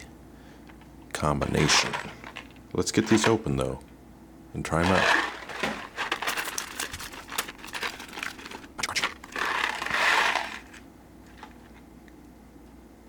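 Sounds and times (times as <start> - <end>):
candy packaging crinkling: 4.7 - 11.8
packaging rustle: 4.8 - 11.8.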